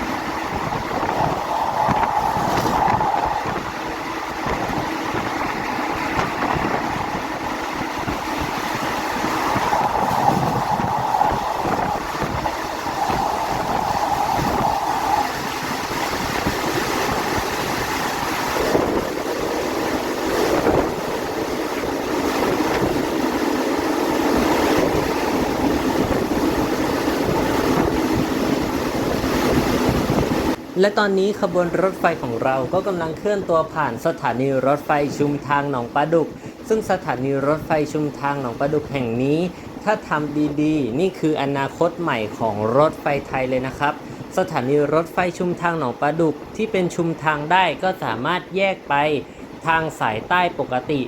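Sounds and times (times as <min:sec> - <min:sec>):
train wheels rumbling on rails: 0:00.0 - 0:30.4.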